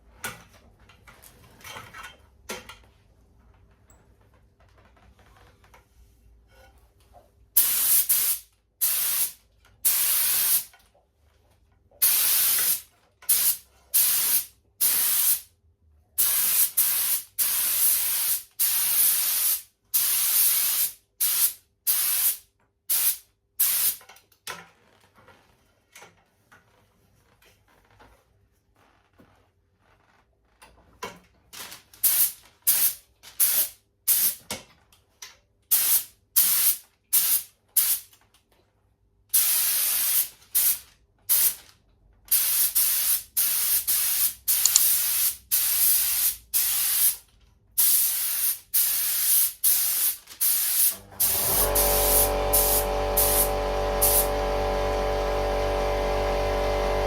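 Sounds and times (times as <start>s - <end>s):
spray gun hissing: 51.6s - 54.3s.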